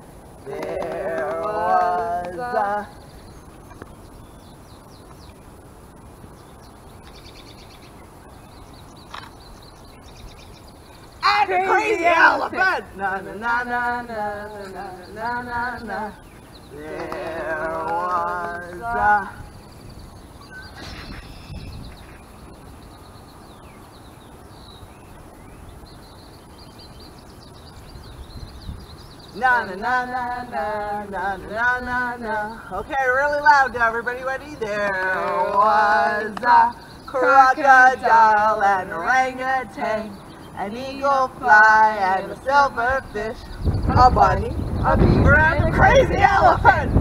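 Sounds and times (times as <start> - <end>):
low outdoor background noise: 0.0 - 47.0
songbirds chirping and trilling: 0.0 - 47.0
wind rumble on microphone: 0.0 - 47.0.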